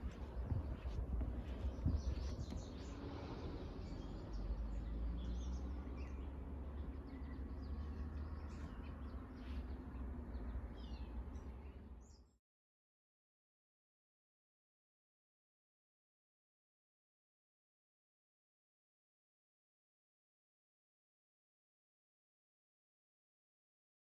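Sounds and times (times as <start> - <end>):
steady low rumble: 0.0 - 3.4
wild birds chirping: 0.0 - 12.4.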